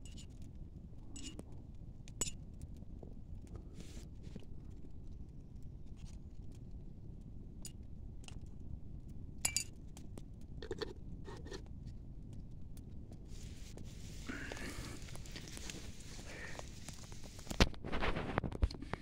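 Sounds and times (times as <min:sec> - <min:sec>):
steady low rumble: 0:10.4 - 0:17.6.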